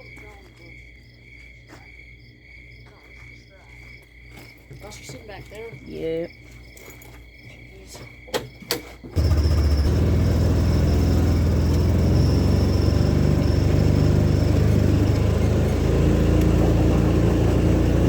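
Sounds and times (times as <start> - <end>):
vehicle engine running: 9.2 - 18.0.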